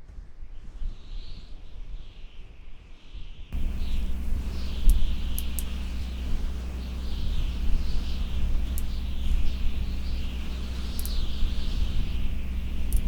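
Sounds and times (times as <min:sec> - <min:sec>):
wind rumbling on microphone: 0:00.0 - 0:13.0
faint clicks: 0:03.6 - 0:13.0
high-pitched chirping: 0:03.6 - 0:13.0
steady low hum: 0:03.6 - 0:13.0.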